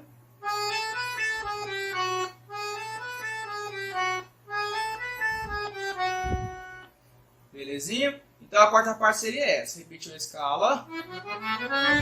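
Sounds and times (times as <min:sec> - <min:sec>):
accordion melody: 0:00.0 - 0:07.0, 0:10.8 - 0:12.0.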